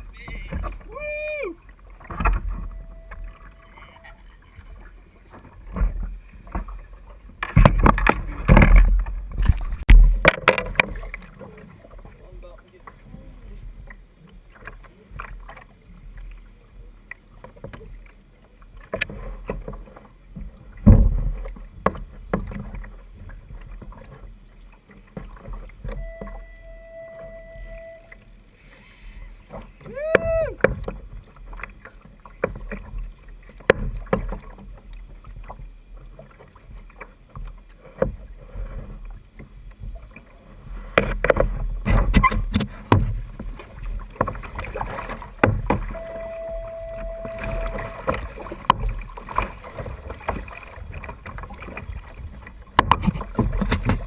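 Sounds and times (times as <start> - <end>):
water slapping against a hull: 0.0 - 54.0
steady tone: 2.3 - 4.3, 25.9 - 29.2, 45.9 - 48.5
knocks on hull: 7.4 - 11.2, 20.4 - 22.9, 29.5 - 31.2, 32.4 - 34.7, 40.9 - 46.0, 47.2 - 54.0
pitch-bending sound: 26.0 - 28.2, 46.0 - 48.1.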